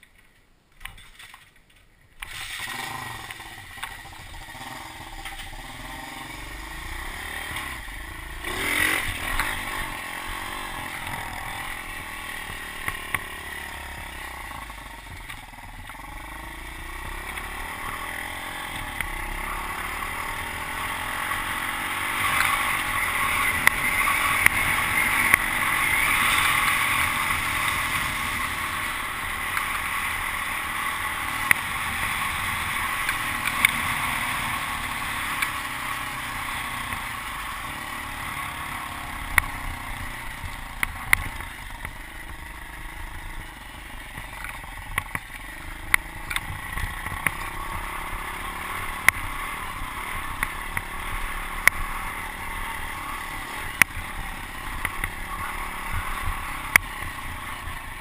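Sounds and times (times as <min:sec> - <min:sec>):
pit bike engine running: 0:02.6 - 0:58.0
sharp clicks and knocks: 0:44.1 - 0:47.5.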